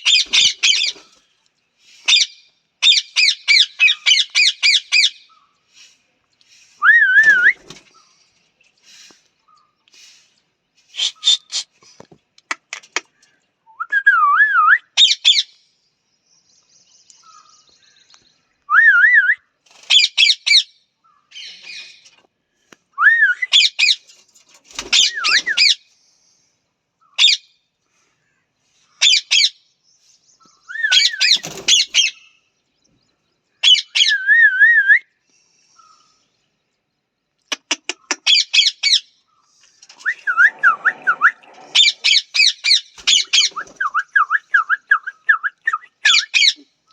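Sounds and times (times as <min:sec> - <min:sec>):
parrot squawking and warbling: 0:40.1 - 0:43.6.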